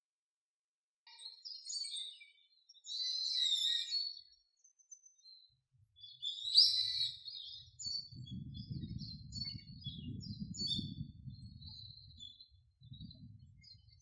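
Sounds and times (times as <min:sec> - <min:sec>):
small birds chirping: 0:01.1 - 0:14.0
low rough rumble: 0:08.0 - 0:14.0.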